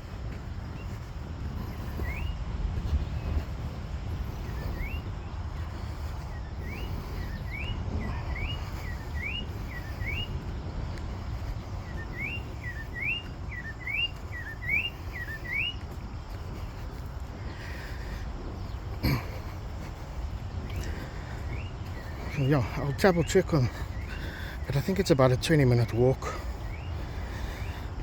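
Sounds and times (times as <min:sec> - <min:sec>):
bird calling rising notes: 0:11.9 - 0:15.8.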